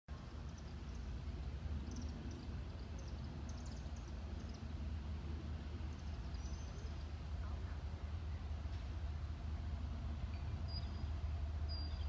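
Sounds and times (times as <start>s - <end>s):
steady low rumble: 0.1s - 12.0s.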